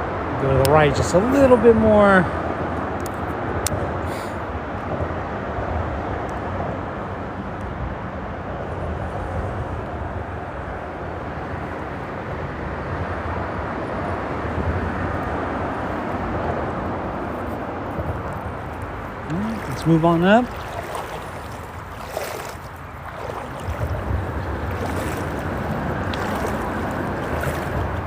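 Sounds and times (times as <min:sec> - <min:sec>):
freeway traffic rumble: 0:00.0 - 0:28.0.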